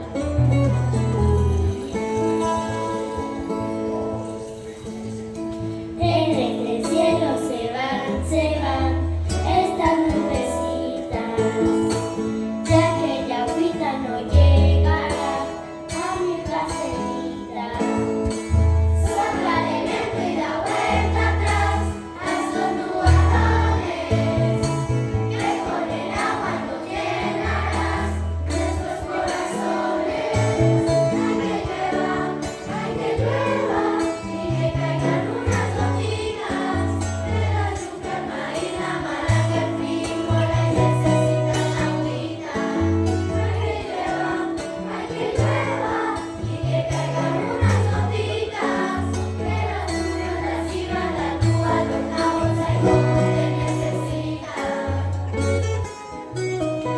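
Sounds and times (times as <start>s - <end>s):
choir singing: 19.0s - 55.5s.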